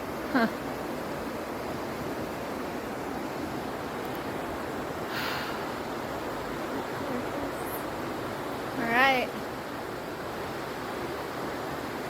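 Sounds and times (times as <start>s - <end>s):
waterfall rushing: 0.0s - 12.0s
short breath-like rush: 5.1s - 5.7s.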